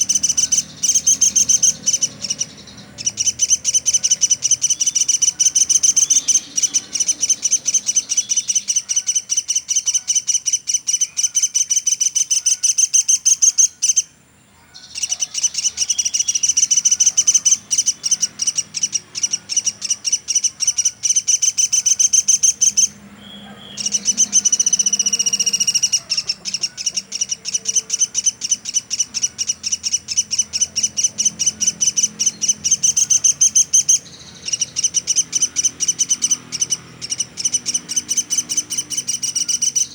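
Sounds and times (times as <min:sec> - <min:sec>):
bird sharp high chipping: 0:00.0 - 0:39.9.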